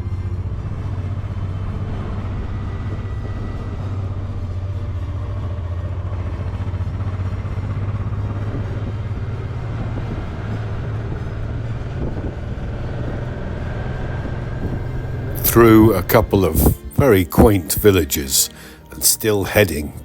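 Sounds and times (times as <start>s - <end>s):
motorcycle engine droning: 0.0s - 18.9s
wind and road noise: 0.0s - 20.0s.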